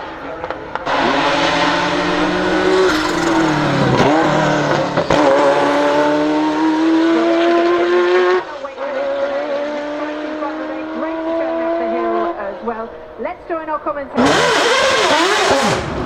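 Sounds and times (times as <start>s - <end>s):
car engine accelerating hard: 0.3s - 16.0s
sharp exhaust cracks: 0.9s - 5.7s.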